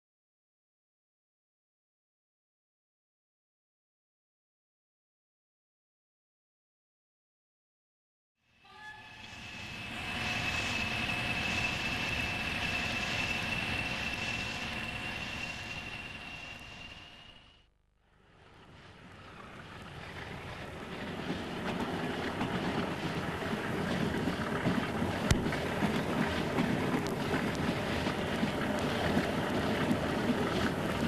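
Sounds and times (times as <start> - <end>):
train running: 8.6 - 17.7, 18.3 - 31.0.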